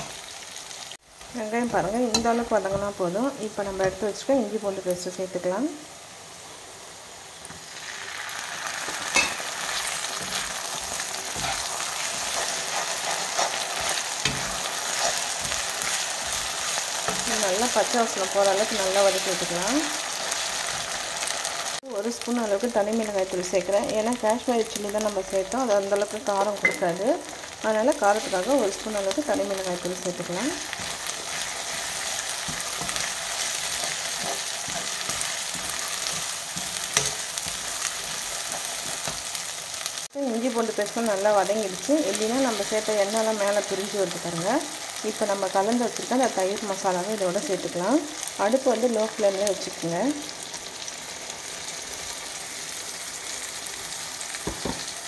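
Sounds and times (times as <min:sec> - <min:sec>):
onions sizzling in hot oil: 0:00.0 - 0:55.0
spatula scraping and knocking pan: 0:08.9 - 0:17.8, 0:30.6 - 0:39.3
metal spatula scraping pan: 0:09.2 - 0:17.3.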